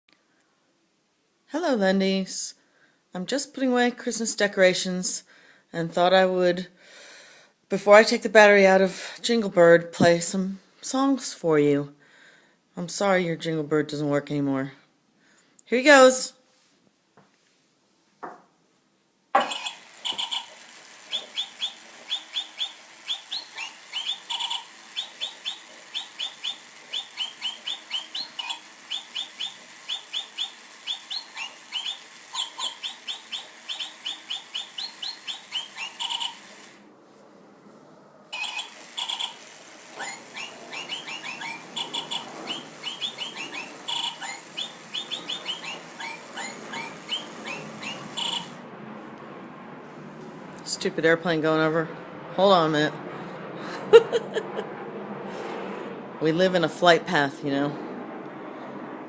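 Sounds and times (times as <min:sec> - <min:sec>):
electronic bird tweet tune: 0:19.4 - 0:36.5, 0:38.4 - 0:39.4, 0:40.0 - 0:48.6
airplane passing over: 0:36.7 - 0:38.4, 0:48.5 - 0:59.0.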